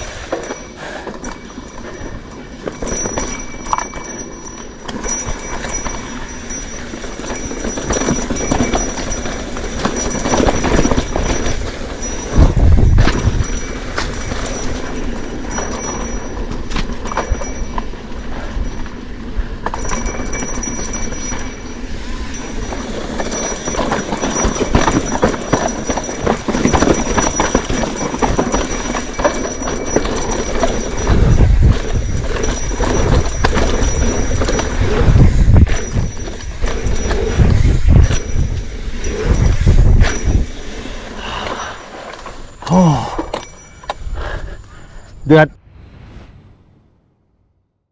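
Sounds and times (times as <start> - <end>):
bike rattling over rough ground: 0.0 - 44.8
wind buffeting microphone: 7.5 - 16.6, 22.0 - 42.6.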